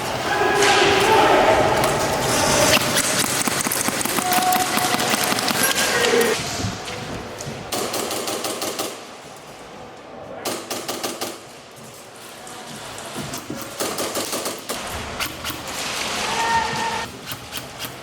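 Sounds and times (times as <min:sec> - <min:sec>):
airsoft guns firing full-auto: 0:02.3 - 0:05.9.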